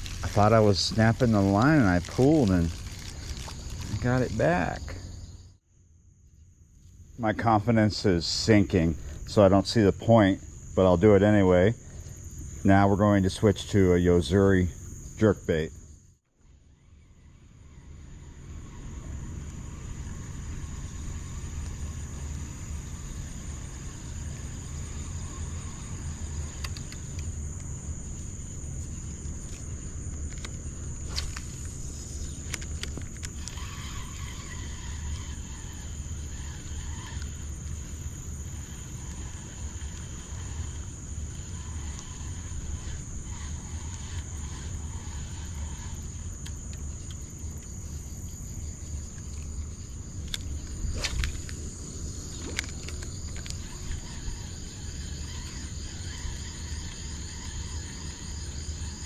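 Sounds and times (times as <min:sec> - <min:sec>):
insects chirring: 0:00.0 - 0:59.0
low steady rumble: 0:16.5 - 0:59.0.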